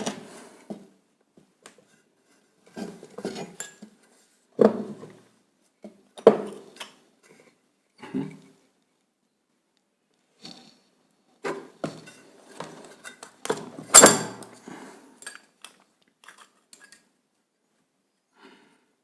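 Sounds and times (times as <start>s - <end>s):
metal clinks and knocks: 13.9s - 14.5s.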